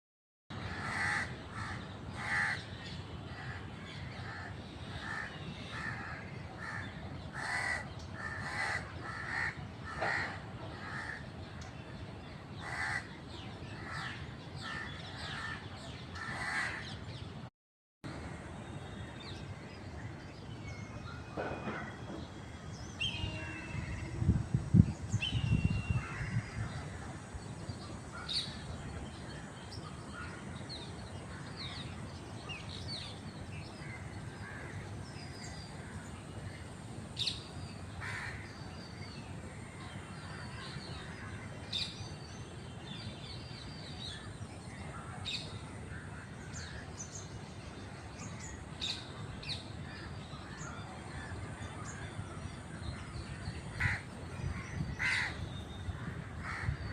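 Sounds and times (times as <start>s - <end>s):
other birds calling: 0.6s - 2.7s, 3.3s - 11.7s, 33.7s - 38.7s, 48.2s - 56.9s.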